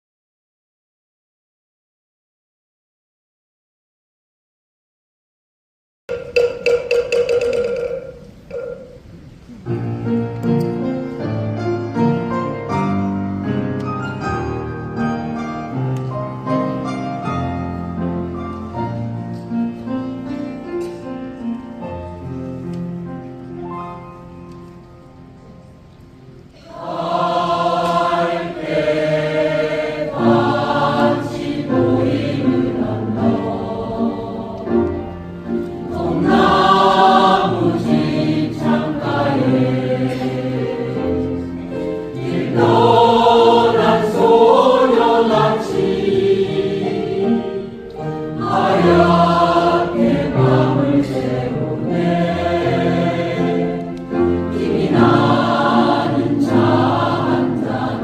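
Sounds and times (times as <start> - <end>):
choir singing in harmony: 26.6 - 58.0.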